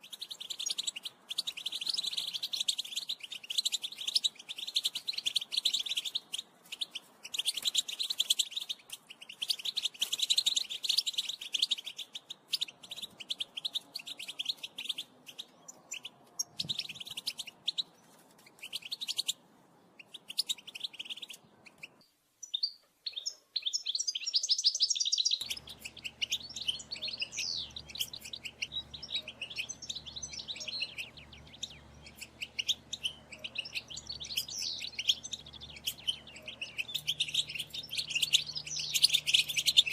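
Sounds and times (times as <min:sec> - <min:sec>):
finches chirping and twittering: 0:00.0 - 0:19.4, 0:20.0 - 0:39.9
faint low hum: 0:25.4 - 0:39.9.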